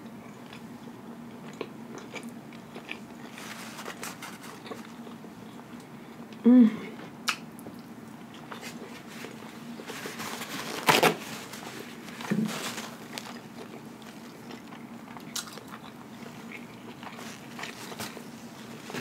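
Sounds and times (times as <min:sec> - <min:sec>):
wet chewing mouth sounds: 0:12.2 - 0:19.0.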